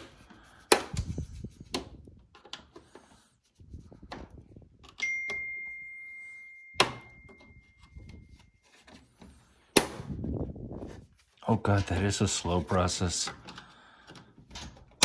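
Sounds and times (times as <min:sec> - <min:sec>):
clicks of dryer parts handled: 0:00.0 - 0:03.0, 0:13.3 - 0:15.0
ringing ding: 0:05.0 - 0:08.0.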